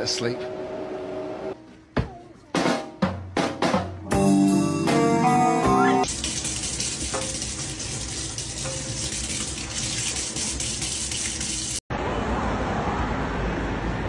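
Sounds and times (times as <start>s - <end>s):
tap water running into sink: 6.0s - 11.8s
outdoor background noise: 11.9s - 14.0s.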